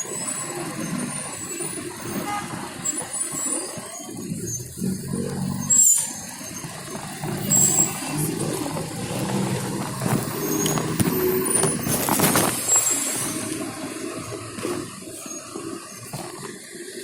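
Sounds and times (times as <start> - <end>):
high-pitched squeals: 0.0 - 16.4
road traffic noise: 0.0 - 17.0.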